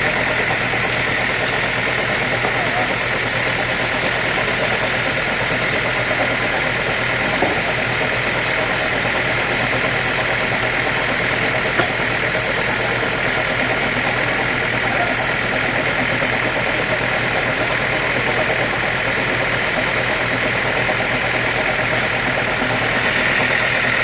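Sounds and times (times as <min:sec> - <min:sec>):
sawmill machinery droning: 0:00.0 - 0:24.0.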